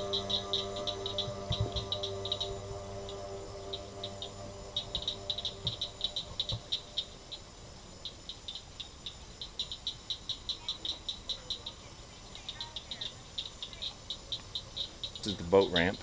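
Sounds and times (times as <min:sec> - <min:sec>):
frogs calling with high clicks: 0:00.0 - 0:16.0.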